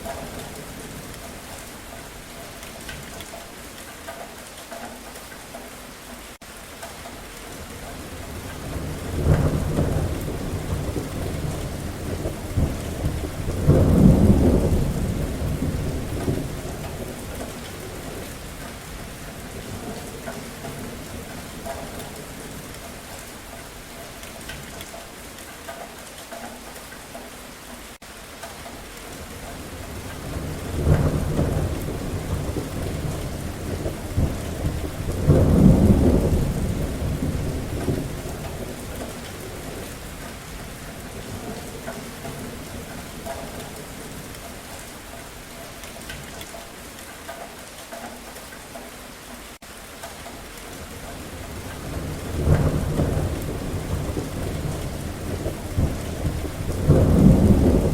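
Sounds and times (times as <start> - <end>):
steady rain falling: 0.0 - 57.9
rolling thunder: 8.2 - 23.2, 29.2 - 44.8, 50.8 - 57.9.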